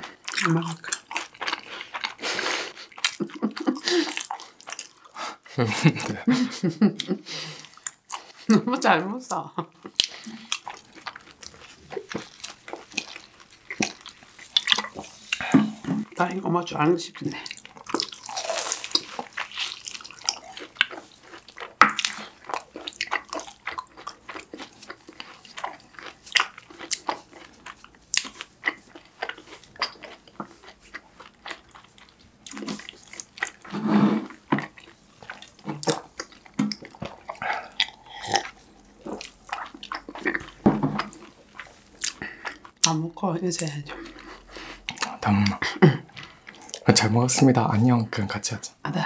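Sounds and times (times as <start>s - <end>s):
people chewing close up: 0.0s - 16.2s, 17.2s - 49.0s.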